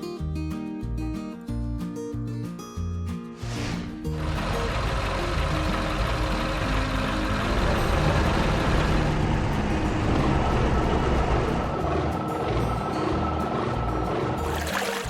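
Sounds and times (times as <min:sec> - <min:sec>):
background music: 0:00.0 - 0:15.0
vehicle engine running: 0:04.1 - 0:14.7.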